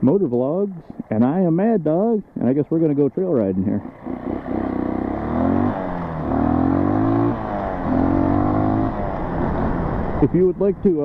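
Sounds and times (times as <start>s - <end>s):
off-road vehicle engine accelerating: 3.3s - 11.0s.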